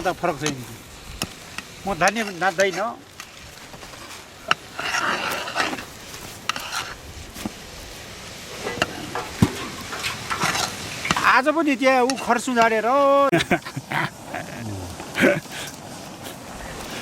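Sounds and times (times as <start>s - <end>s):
spoon scraping cooking pot: 4.5s - 5.9s, 6.5s - 7.0s.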